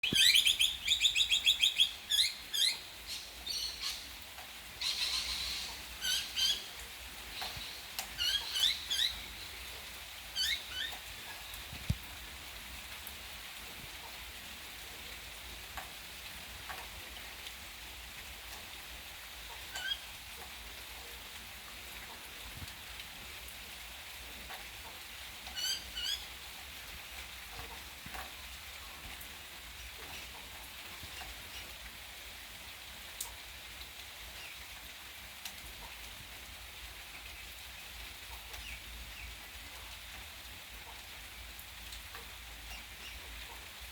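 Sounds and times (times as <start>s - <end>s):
small birds chirping: 0.0s - 4.2s, 4.8s - 9.8s, 10.4s - 11.9s
falling rain hiss: 0.0s - 43.9s.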